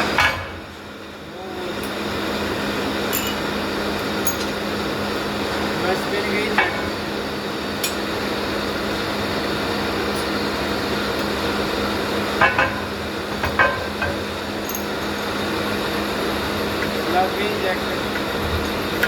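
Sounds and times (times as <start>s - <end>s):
machine hum: 0.0s - 19.0s
metallic clinks: 3.1s - 3.5s, 14.6s - 15.4s.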